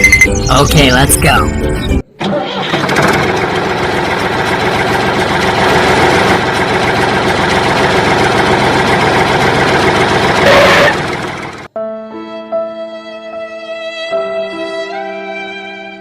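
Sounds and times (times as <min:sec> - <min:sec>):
small engine chugging: 0:02.6 - 0:11.7.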